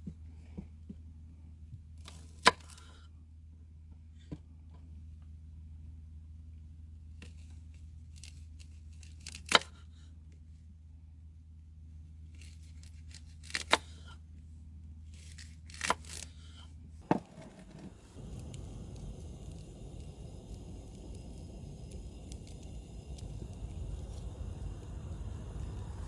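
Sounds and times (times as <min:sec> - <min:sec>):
low hum: 0:00.0 - 0:26.0
packaging being torn open: 0:08.1 - 0:09.7, 0:12.4 - 0:13.9, 0:15.2 - 0:16.4.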